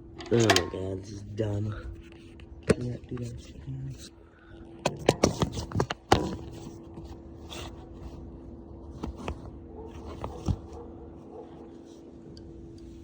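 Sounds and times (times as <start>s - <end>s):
steady hum: 0.0s - 13.0s
metal tools clicking on engine: 0.2s - 0.8s.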